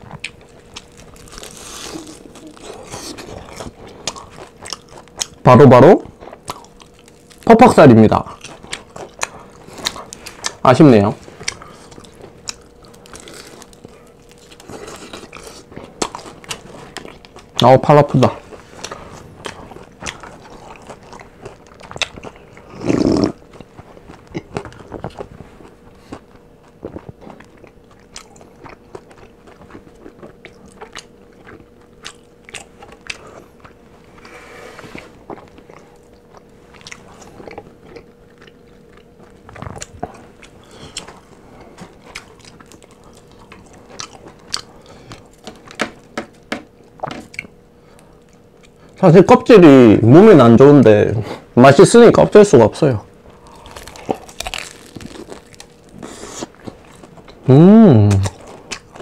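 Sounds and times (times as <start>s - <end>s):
crunching and chewing fried chicken: 0.0s - 50.7s, 51.7s - 59.0s
mouth noises: 57.4s - 58.4s.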